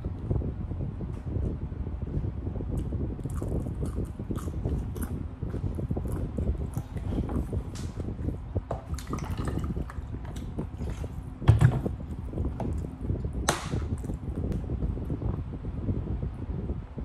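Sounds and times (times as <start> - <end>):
wet mouth clicks: 2.7 - 5.2
person chewing food: 2.8 - 7.8.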